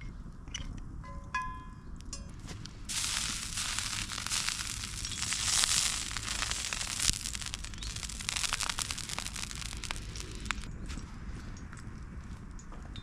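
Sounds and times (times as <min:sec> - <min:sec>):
campfire crackling and hissing: 0:02.8 - 0:12.5.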